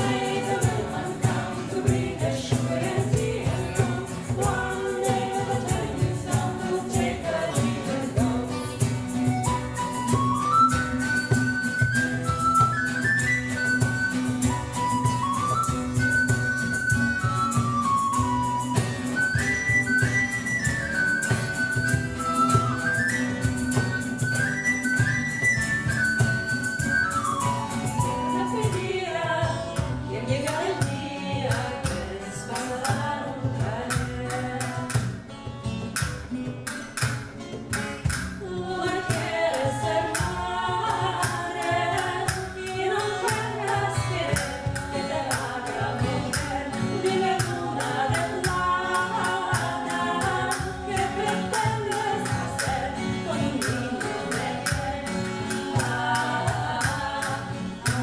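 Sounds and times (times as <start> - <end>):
person singing: 0.0 - 10.3, 38.4 - 58.0
instrumental accompaniment: 0.0 - 58.0
percussion beat: 0.0 - 58.0
flute-like melody: 9.0 - 29.4.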